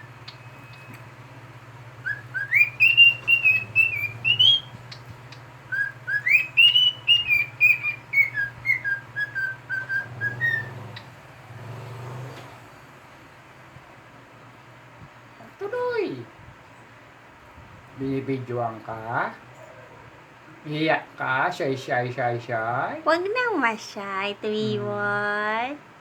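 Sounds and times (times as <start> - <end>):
cockatiel whistling: 2.0 - 11.1.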